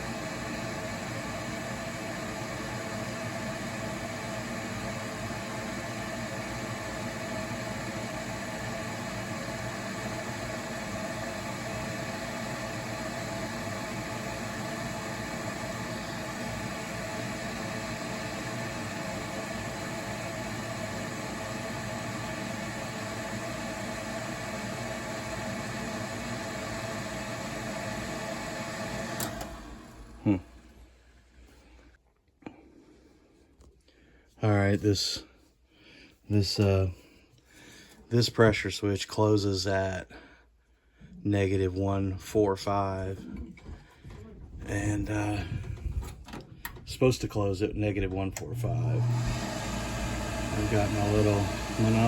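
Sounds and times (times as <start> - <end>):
motor hum: 0.0 - 31.0, 43.1 - 52.0
fan whoosh: 48.4 - 52.0.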